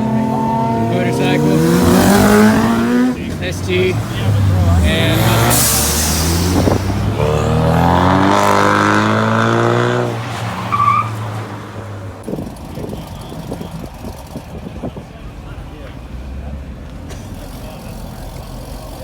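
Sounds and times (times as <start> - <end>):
car engine revving: 0.0 - 14.9.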